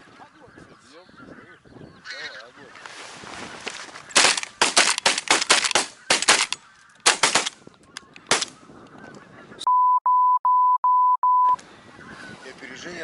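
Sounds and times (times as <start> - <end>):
electronic beep: 9.6 - 11.6.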